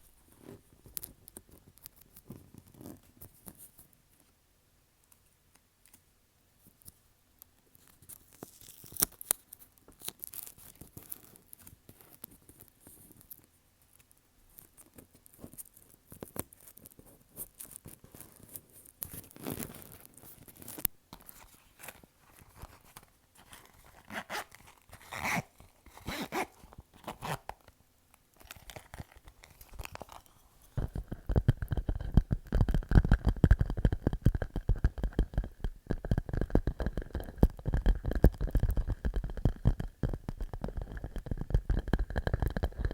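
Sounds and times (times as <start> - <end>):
fingers tapping plastic pouch: 28.4 - 42.9.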